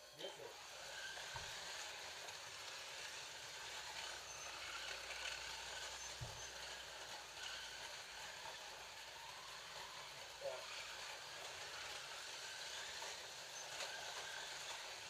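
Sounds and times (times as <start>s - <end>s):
electric motors whining: 0.0s - 15.0s
slot cars clattering on track: 0.6s - 15.0s.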